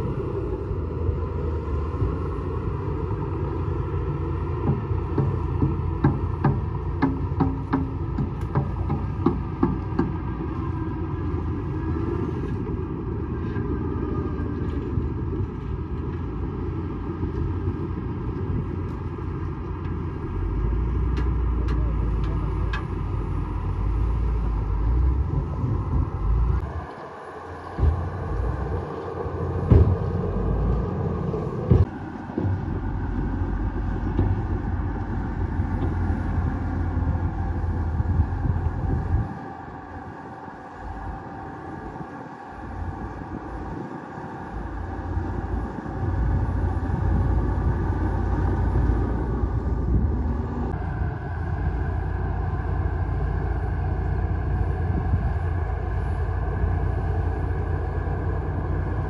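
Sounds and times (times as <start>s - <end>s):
bulldozer diesel engine running: 0.0s - 59.0s
sharp metallic knocks: 4.6s - 10.5s.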